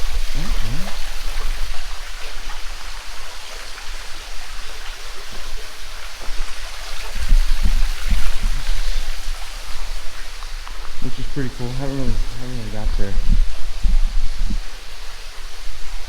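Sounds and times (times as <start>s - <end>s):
cave stream water rushing: 0.0s - 16.0s.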